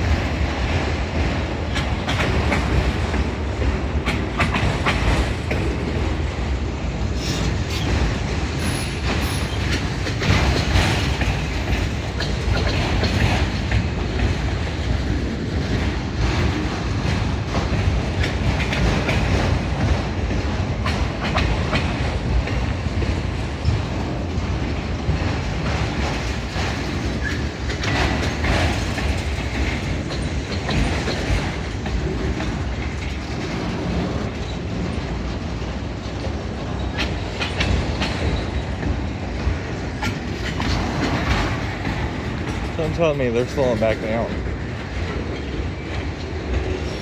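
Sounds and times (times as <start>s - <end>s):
train wheel clacks: 0.0s - 47.0s
train wheels rumbling on rails: 0.0s - 47.0s.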